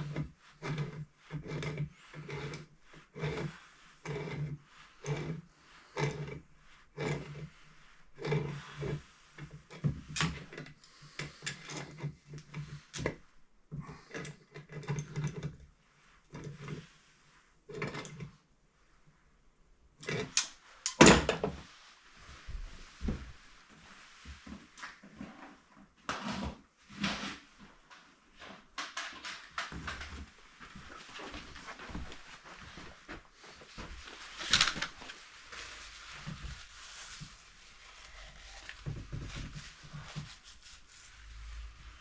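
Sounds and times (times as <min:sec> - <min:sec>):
hand tool scraping strokes: 0:00.0 - 0:13.2, 0:31.0 - 0:42.0.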